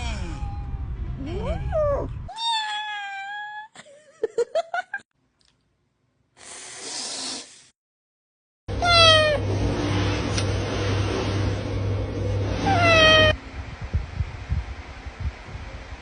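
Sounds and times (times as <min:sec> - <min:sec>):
steady hum: 0:08.7 - 0:16.0
kittens meowing: 0:08.8 - 0:09.4, 0:12.6 - 0:13.4.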